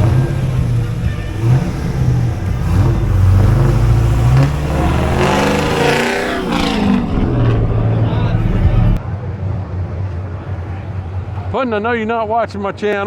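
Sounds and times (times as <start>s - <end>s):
vehicle accelerating past: 0.0s - 9.0s
deep engine running: 0.0s - 9.2s.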